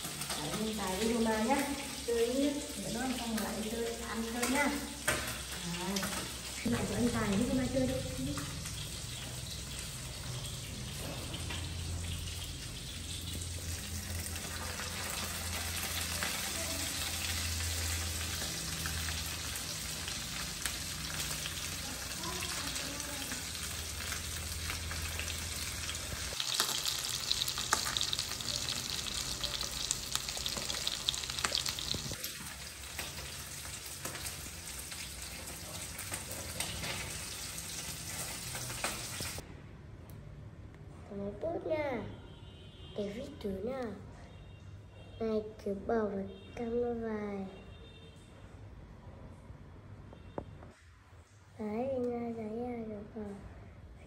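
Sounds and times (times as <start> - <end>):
food frying in hot oil: 0.0 - 39.4.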